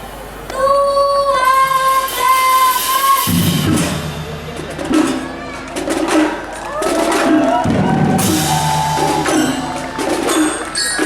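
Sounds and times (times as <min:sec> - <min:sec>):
low percussion rumble: 0:03.3 - 0:11.0
melody instrument long held notes: 0:03.3 - 0:11.0.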